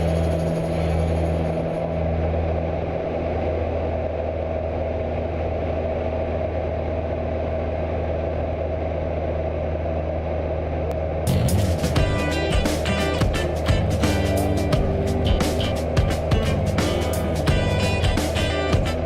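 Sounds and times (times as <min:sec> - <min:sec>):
aircraft propeller engine humming: 0:00.0 - 0:19.0.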